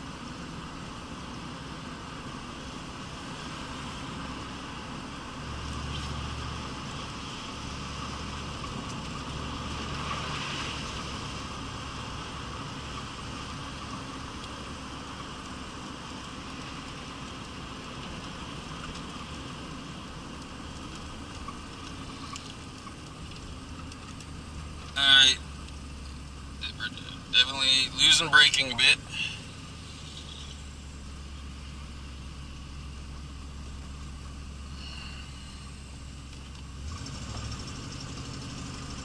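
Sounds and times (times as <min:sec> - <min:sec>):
low engine hum: 0:00.0 - 0:39.0
tyres hissing on wet road: 0:09.3 - 0:18.8, 0:21.6 - 0:23.1, 0:25.0 - 0:39.0.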